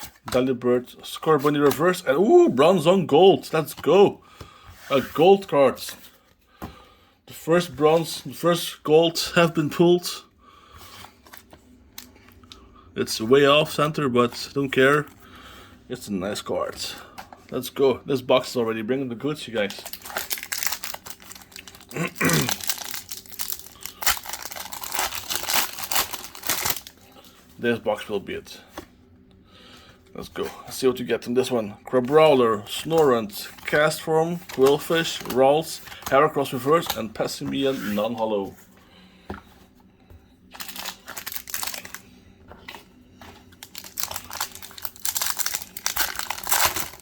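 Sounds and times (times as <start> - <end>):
foil wrapper crinkling and tearing: 19.6 - 27.0, 40.5 - 42.1, 43.5 - 47.0.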